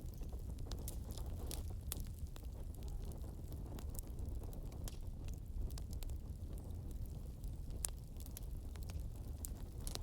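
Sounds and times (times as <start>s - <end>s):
burning wood crackling and popping: 0.0s - 10.0s
rumble of flames: 0.0s - 10.0s.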